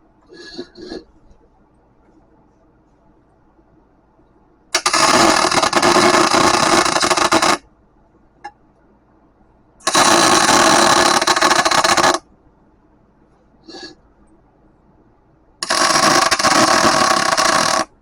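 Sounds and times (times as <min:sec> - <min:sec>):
welding arc crackling: 0:04.8 - 0:07.6, 0:09.8 - 0:12.2, 0:15.6 - 0:17.9.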